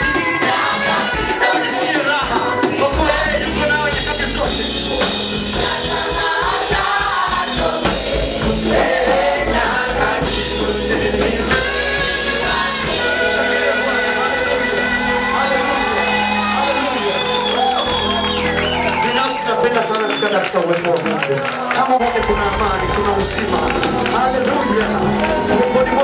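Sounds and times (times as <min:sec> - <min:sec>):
group of voices singing: 0:00.0 - 0:17.1
band with sustained bass: 0:02.2 - 0:19.0.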